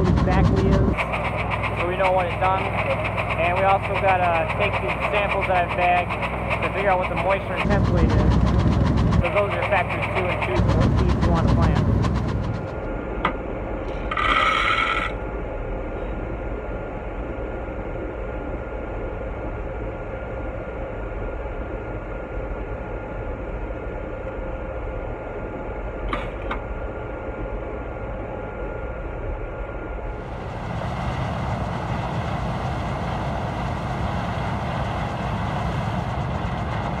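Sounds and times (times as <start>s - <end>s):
farm vehicle engine running: 0.0s - 12.8s, 30.2s - 37.0s.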